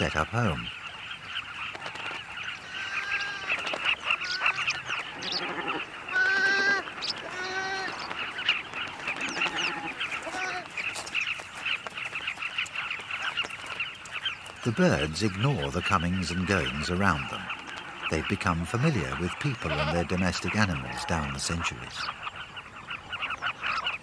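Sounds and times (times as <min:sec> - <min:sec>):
chatter of bird chirps: 0:00.0 - 0:24.0
drawn-out bleating bird calls: 0:02.4 - 0:22.3.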